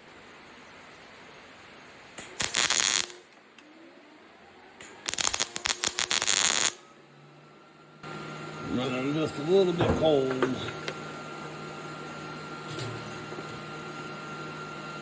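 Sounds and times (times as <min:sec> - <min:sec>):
arc welder crackle: 0:02.1 - 0:03.6, 0:04.8 - 0:06.9.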